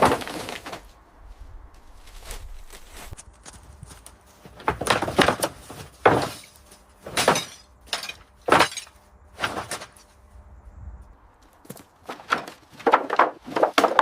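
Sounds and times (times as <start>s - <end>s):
scrap debris clattering crashes: 4.5s - 10.1s, 12.0s - 14.0s.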